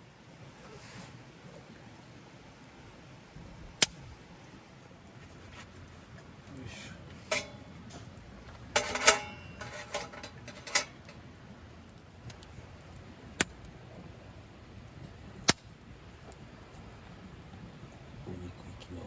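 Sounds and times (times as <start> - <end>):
metal cookware clattering: 7.1 - 11.2.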